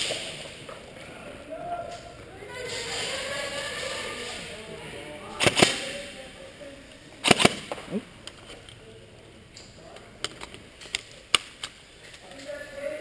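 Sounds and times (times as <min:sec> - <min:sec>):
airsoft guns firing: 0:00.0 - 0:00.6, 0:05.3 - 0:06.2, 0:07.2 - 0:08.0.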